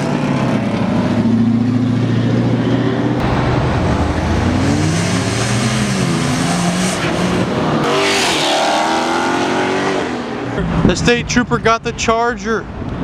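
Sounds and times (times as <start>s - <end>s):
rasping engine rush: 3.2s - 8.7s
performance cars accelerating: 3.2s - 10.6s.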